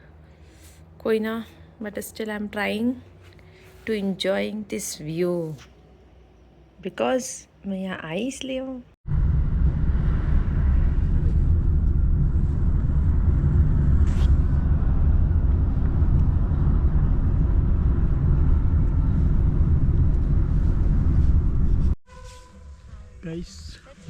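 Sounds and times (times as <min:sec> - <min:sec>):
car road and engine noise: 0:00.0 - 0:03.8, 0:09.1 - 0:22.0.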